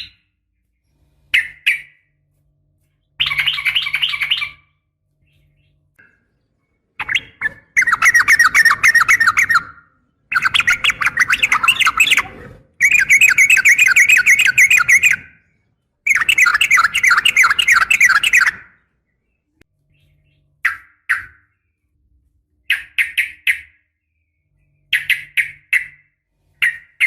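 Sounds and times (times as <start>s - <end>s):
bulbul chattering: 6.9s - 18.8s.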